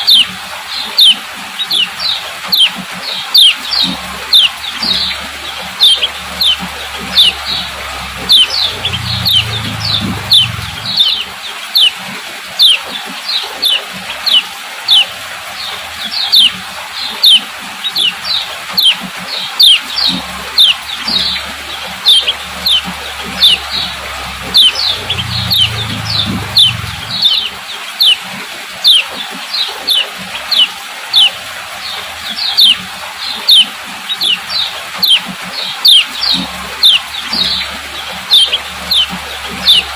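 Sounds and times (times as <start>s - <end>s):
bird sharp chirping call: 0.9s - 12.0s, 16.1s - 16.6s, 17.2s - 28.2s, 29.9s - 31.4s, 32.4s - 39.9s
low hum: 3.7s - 11.4s, 19.9s - 27.7s.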